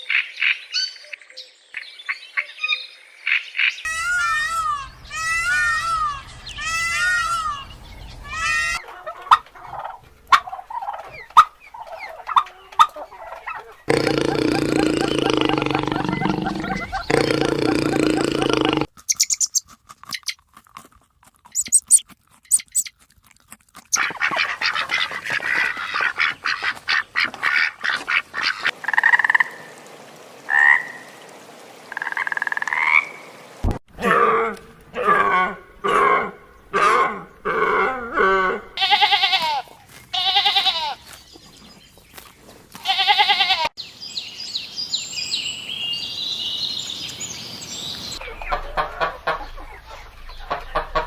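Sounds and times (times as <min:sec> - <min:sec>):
frogs croaking: 0:09.3 - 0:19.6, 0:28.2 - 0:33.4.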